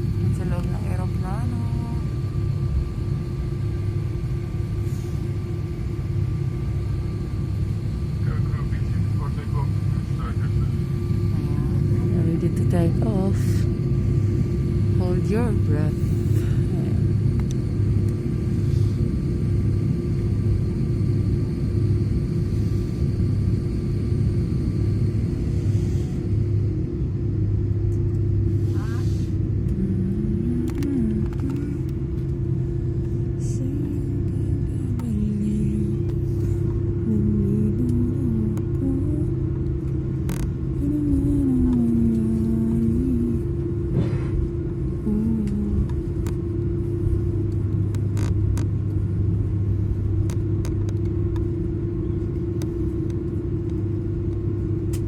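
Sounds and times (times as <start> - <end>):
jet engine rumble in cabin: 0.0 - 55.0
faint voice: 28.7 - 29.2.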